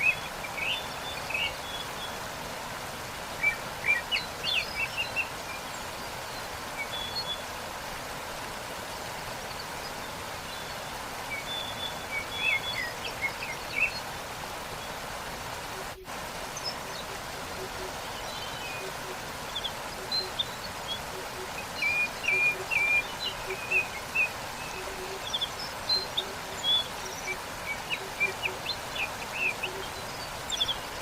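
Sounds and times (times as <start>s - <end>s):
waterfall rushing: 0.0s - 31.0s
small birds chirping: 9.4s - 31.0s.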